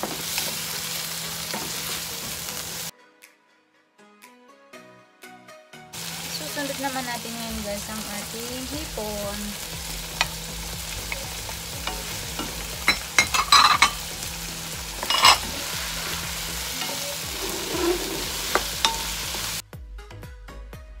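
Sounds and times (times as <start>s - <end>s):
food sizzling in a wok: 0.0s - 2.9s, 6.0s - 19.6s
background music with drum beat: 8.7s - 21.0s
wooden spatula scraping wok: 9.1s - 19.6s.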